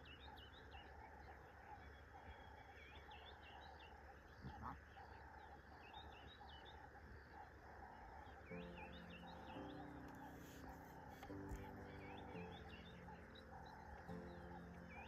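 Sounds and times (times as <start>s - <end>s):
birds chirping and trilling: 0.0s - 15.0s
low pulsing bird call: 0.0s - 15.0s.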